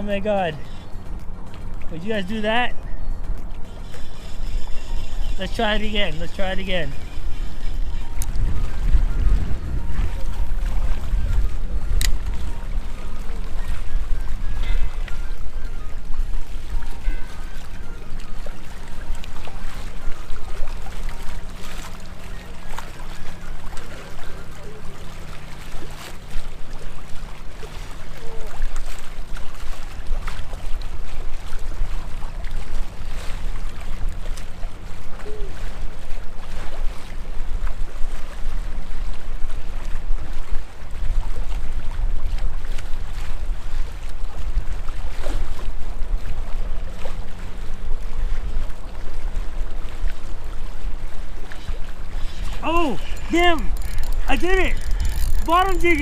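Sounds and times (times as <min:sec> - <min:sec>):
wind buffeting microphone: 0:02.5 - 0:21.4.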